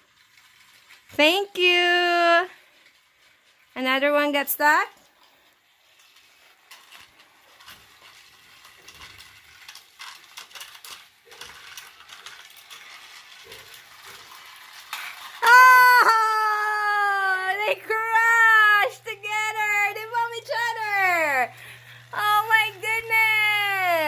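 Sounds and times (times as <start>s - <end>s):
plastic toy train clicking: 0.0s - 16.7s.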